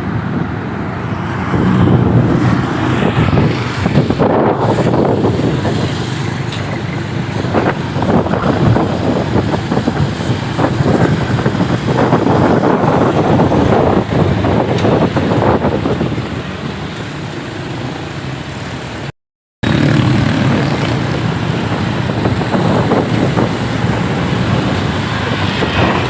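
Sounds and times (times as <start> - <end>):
wind buffeting microphone: 0.0 - 17.9, 19.6 - 26.0
motorcycle engine running: 19.6 - 24.2.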